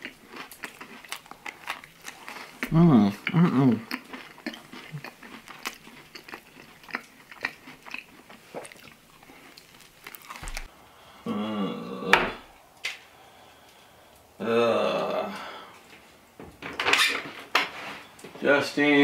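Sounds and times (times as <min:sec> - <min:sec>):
man chewing with mouth clicks: 0:00.0 - 0:10.7
drawn-out vocal sound: 0:10.7 - 0:15.8.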